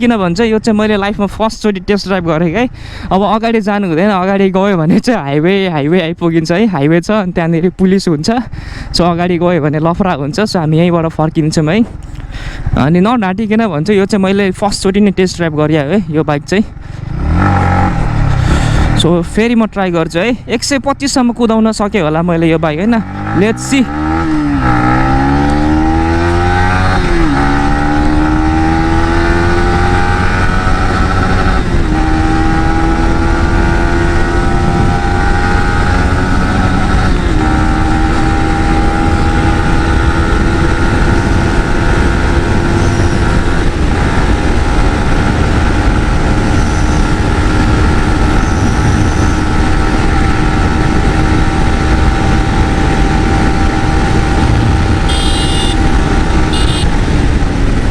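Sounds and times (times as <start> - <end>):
motorcycle engine accelerating: 16.4 - 57.9.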